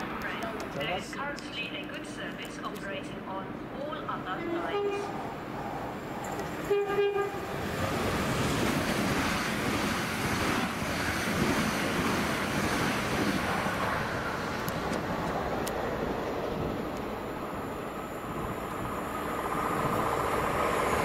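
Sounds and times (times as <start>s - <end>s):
train rushing past: 1.4s - 21.0s
train horn blast: 4.5s - 5.2s, 6.6s - 7.5s.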